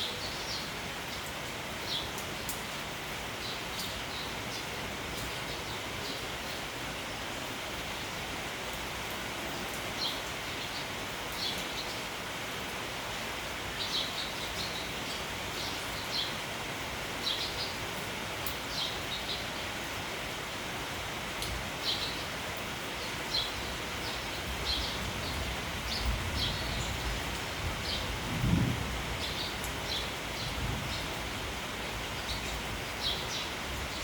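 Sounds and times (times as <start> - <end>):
rain falling: 0.0 - 34.0
sparrows chirping: 13.8 - 16.4, 23.0 - 28.1, 29.2 - 31.4, 32.1 - 34.0
low rumble of wind: 24.3 - 34.0.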